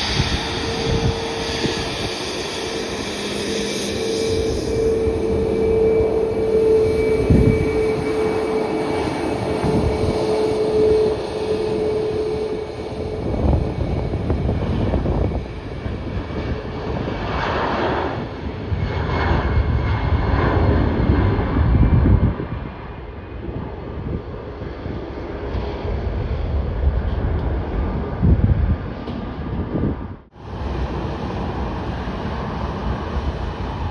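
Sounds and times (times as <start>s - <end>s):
jet engine whine: 0.0s - 33.9s
low crackling jet rumble: 0.0s - 33.9s.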